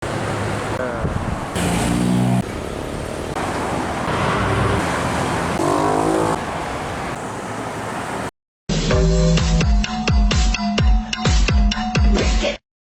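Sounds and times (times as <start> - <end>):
rumble of engines and tyres: 0.0 - 8.3
trucks and vehicles passing: 0.0 - 8.3.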